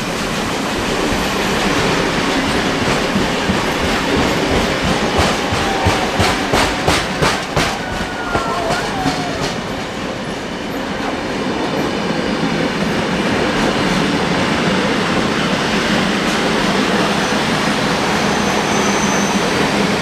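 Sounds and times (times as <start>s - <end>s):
train wheels clicking over rail joints: 0.0s - 18.2s
train rolling rumble: 0.0s - 20.0s
faint wheel squeal: 18.0s - 20.0s.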